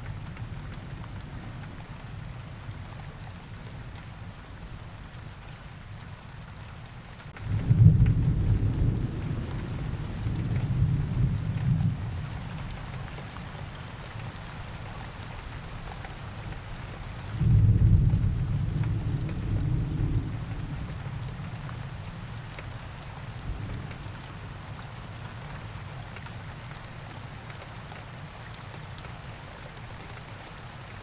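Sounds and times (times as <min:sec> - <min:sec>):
steady rain: 0:00.0 - 0:31.0
low rolls of thunder: 0:07.4 - 0:12.6, 0:17.4 - 0:21.6, 0:23.4 - 0:24.2.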